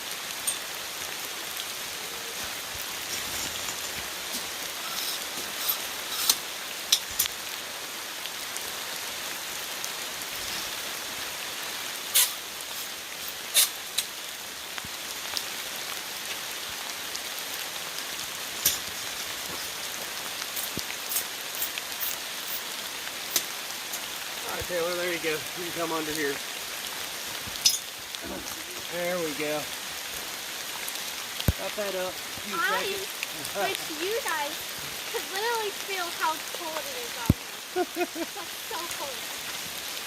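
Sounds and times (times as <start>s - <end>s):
heavy rain hiss: 0.0s - 40.0s.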